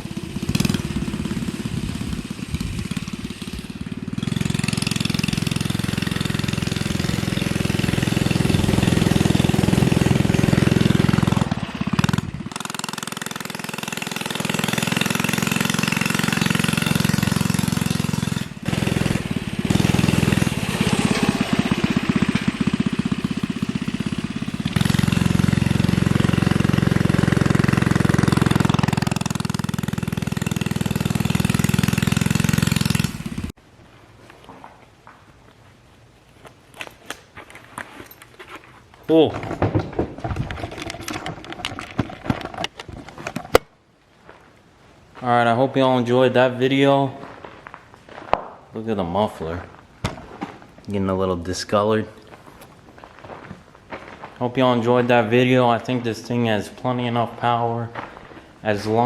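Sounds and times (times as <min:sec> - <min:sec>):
minibike engine revving: 0:00.0 - 0:33.6.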